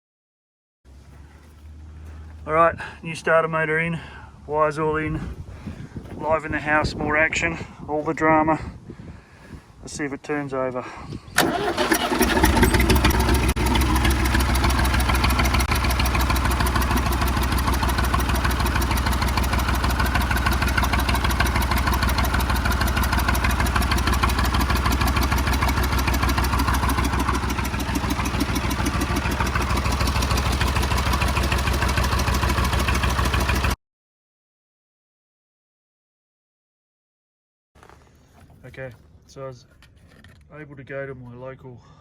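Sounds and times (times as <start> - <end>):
backhoe engine idling: 0.9 - 3.0, 11.4 - 33.8.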